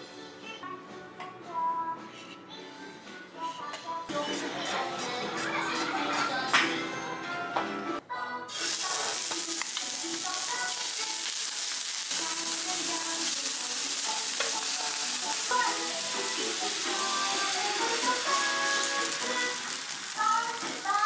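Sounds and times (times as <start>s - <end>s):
soft background music: 0.0s - 21.0s
oysters sizzling on a griddle: 8.5s - 21.0s.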